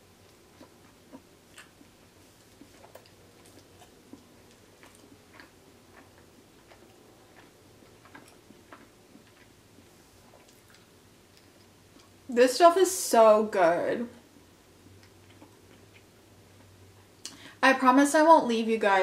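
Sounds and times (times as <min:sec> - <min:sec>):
chewing with wet mouth clicks: 0:00.2 - 0:12.2, 0:14.8 - 0:17.4.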